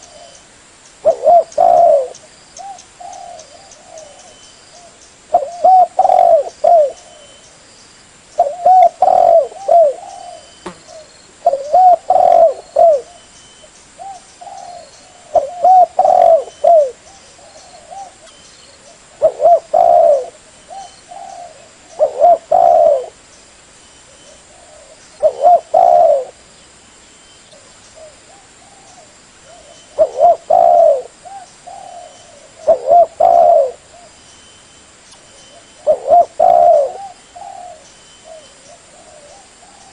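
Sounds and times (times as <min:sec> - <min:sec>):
dove cooing: 0:01.0 - 0:07.4, 0:08.4 - 0:13.3, 0:14.0 - 0:23.2, 0:24.1 - 0:26.4, 0:27.5 - 0:34.2, 0:35.3 - 0:39.9.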